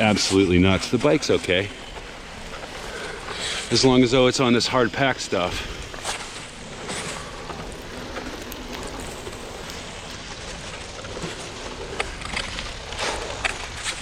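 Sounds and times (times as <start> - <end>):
bicycle tyres crunching on snow: 0.0 - 14.0.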